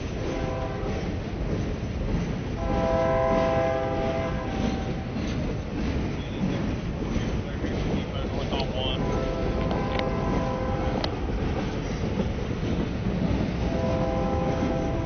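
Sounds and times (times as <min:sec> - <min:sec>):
train rumbling past: 0:00.0 - 0:15.0
locomotive chime horn: 0:00.3 - 0:01.0, 0:02.6 - 0:05.0, 0:08.9 - 0:11.1, 0:13.7 - 0:15.0.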